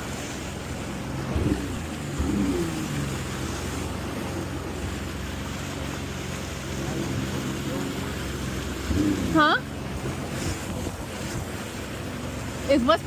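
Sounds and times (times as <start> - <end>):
jet ski engine humming: 0.0 - 13.0
water noise: 0.0 - 13.0
wind on microphone: 8.8 - 11.8.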